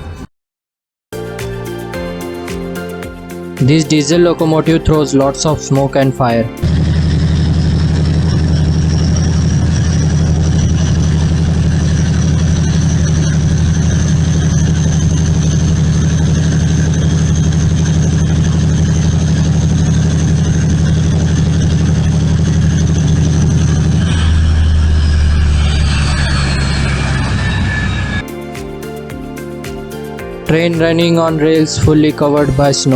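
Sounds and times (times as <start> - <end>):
diesel locomotive engine running: 6.1 - 28.3.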